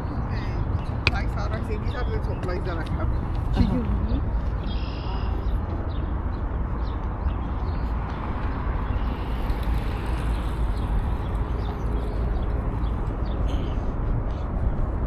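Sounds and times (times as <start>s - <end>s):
low outdoor rumble: 0.0s - 6.0s.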